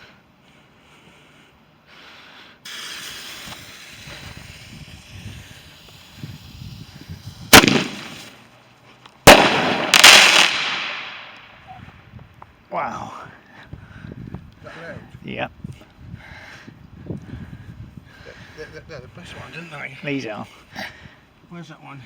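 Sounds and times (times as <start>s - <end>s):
loud firework burst: 2.6s - 8.4s, 9.3s - 11.4s
firework hissing: 2.6s - 8.5s, 9.3s - 11.3s
firework bangs: 2.7s - 8.4s, 9.2s - 11.6s.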